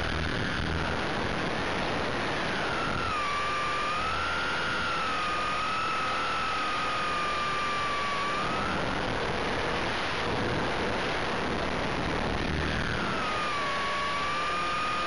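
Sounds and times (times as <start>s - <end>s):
rc helicopter motor whine: 0.0s - 15.0s.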